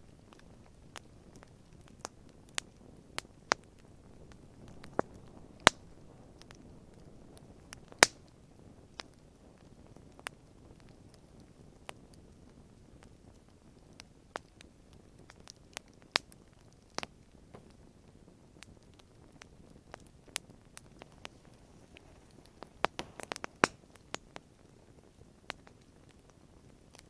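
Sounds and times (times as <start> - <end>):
campfire crackling and popping: 0.0 - 27.0.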